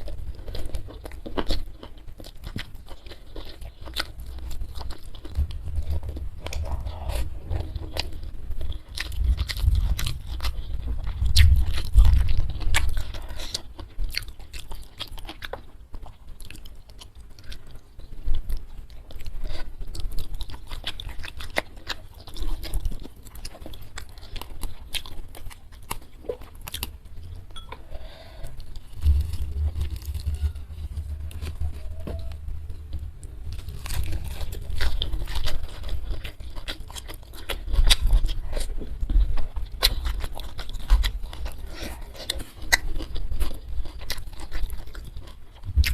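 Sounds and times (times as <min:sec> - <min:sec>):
chewing crisp food: 0:00.0 - 0:45.9
crisp crunches: 0:28.2 - 0:45.9.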